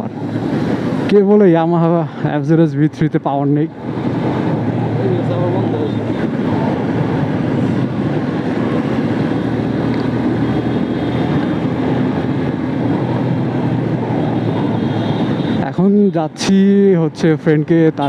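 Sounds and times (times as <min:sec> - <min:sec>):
wind noise on microphone: 0:03.6 - 0:15.7.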